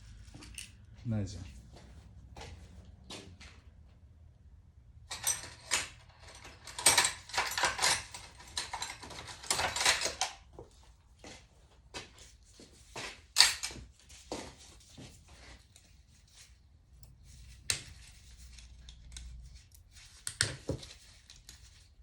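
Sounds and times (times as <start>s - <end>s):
metal tools and engine parts clinking: 5.1s - 10.5s, 13.2s - 13.8s.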